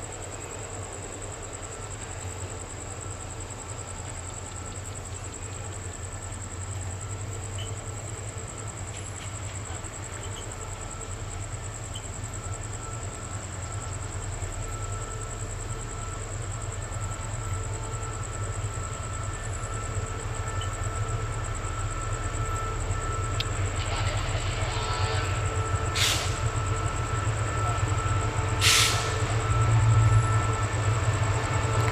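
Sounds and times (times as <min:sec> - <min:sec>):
passenger train rumbling: 0:00.0 - 0:31.9
thin high whine: 0:17.2 - 0:31.9.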